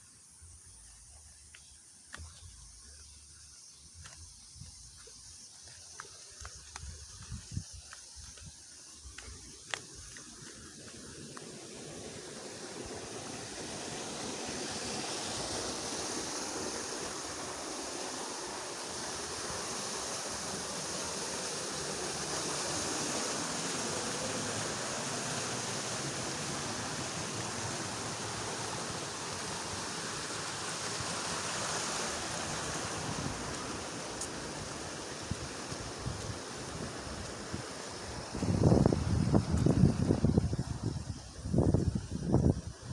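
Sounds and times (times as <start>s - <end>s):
stream water rushing: 9.5s - 41.7s.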